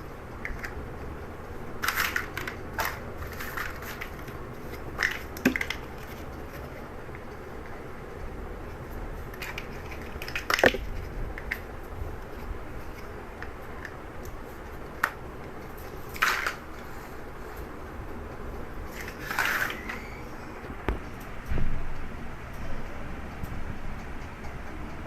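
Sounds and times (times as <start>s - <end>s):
plastic bricks clicking together: 1.8s - 6.7s.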